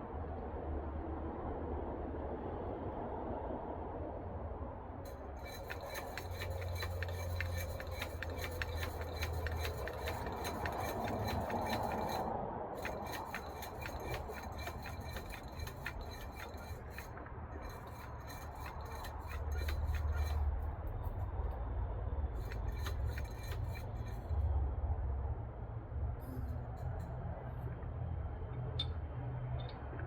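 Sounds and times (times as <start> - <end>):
rapid tool clicking and scraping: 5.1 - 21.1, 22.4 - 24.4.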